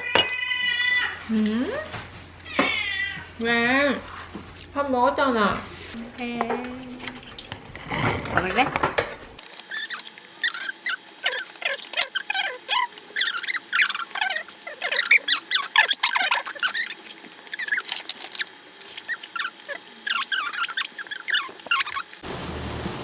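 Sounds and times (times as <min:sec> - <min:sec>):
small animal squeaking: 0:09.6 - 0:22.2.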